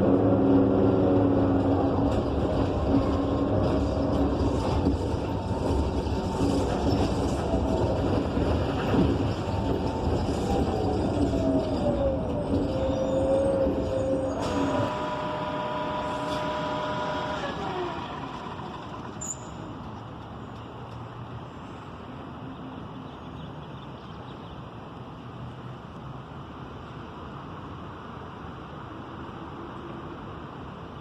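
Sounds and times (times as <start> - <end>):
bus engine whine: 0.0 - 23.8
bus rumble: 0.0 - 31.0
high squeal: 9.2 - 19.7.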